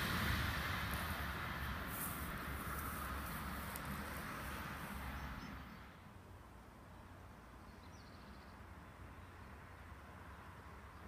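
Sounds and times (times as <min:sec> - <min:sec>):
train rumble: 0:00.0 - 0:05.9.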